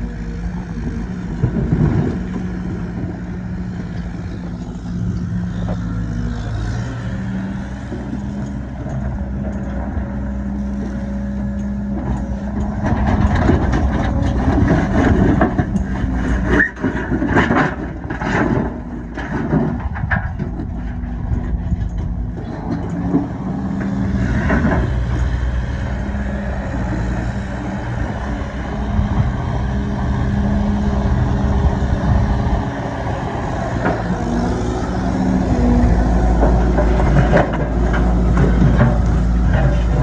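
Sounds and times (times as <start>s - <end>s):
heavy equipment diesel engine running: 0.0s - 40.0s
loud clattering and scraping: 12.0s - 25.4s, 33.5s - 40.0s.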